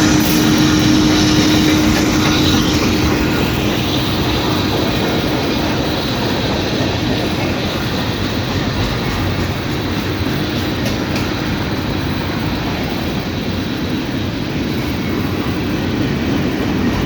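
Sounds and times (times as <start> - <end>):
locomotive hum: 0.0 - 17.0
train wheels rumbling on rails: 0.0 - 17.0.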